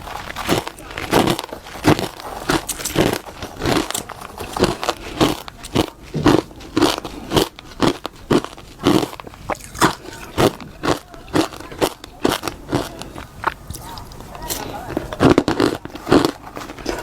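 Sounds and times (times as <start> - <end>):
crunching and chewing frost: 0.0 - 17.0.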